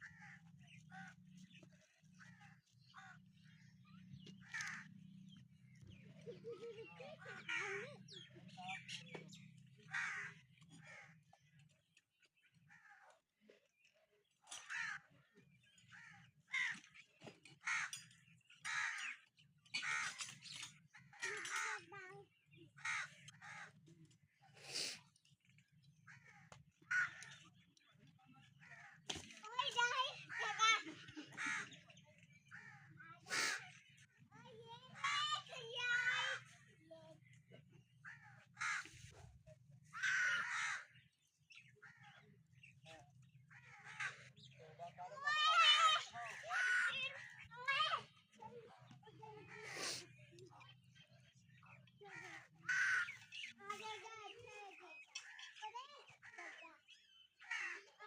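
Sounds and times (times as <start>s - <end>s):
crow cawing: 9.9s - 11.1s, 17.6s - 18.0s, 22.8s - 23.7s, 26.1s - 27.4s, 38.1s - 38.9s, 40.0s - 41.0s, 43.5s - 44.3s, 52.1s - 53.5s.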